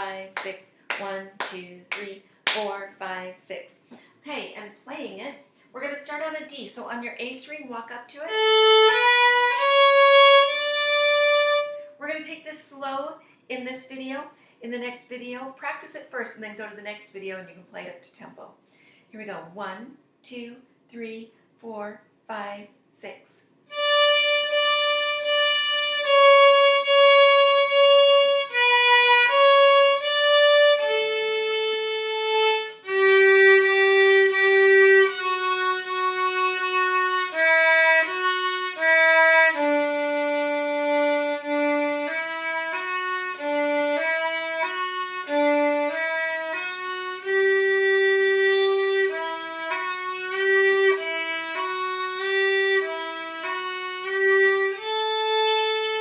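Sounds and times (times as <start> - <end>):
solo violin melody: 8.2 - 12.0, 23.7 - 56.0.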